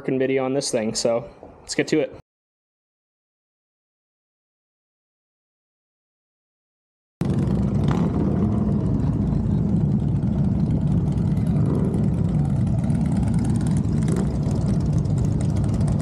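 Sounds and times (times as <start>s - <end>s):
motorcycle engines idling: 7.2s - 16.0s.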